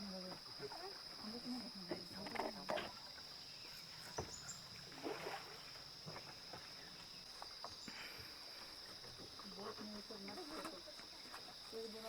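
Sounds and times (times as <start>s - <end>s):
insects droning: 0.0s - 12.0s
oar strokes in water: 4.0s - 6.6s.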